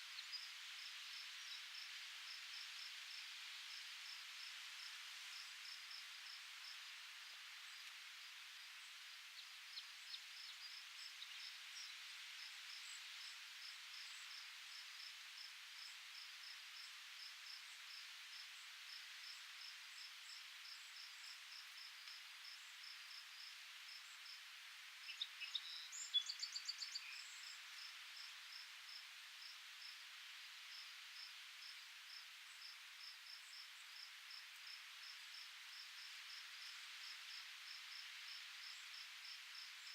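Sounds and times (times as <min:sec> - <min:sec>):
soft outdoor hiss: 0:00.0 - 0:39.9
crickets chirping: 0:09.7 - 0:39.9.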